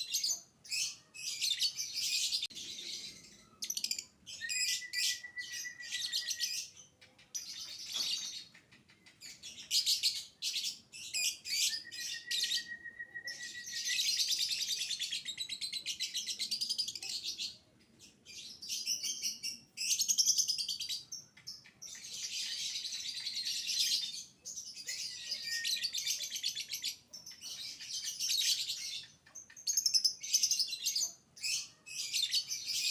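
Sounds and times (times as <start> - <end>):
whistled bird note: 4.4 - 6.5, 11.5 - 14.2.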